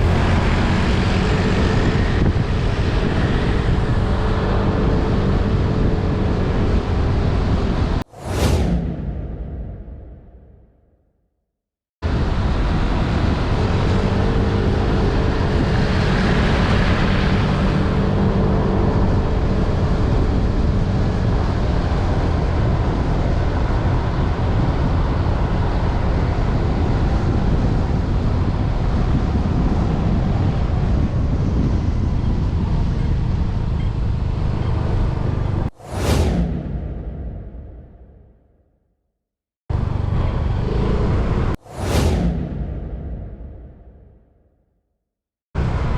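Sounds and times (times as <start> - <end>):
short whoosh: 0.0 - 0.9, 8.0 - 11.0, 35.6 - 38.5, 39.7 - 44.5
motorbike engine: 0.0 - 5.6
wind on microphone: 0.0 - 10.4, 12.0 - 38.0
road rumble: 0.0 - 10.6, 12.0 - 38.3, 39.7 - 44.2, 45.6 - 45.9.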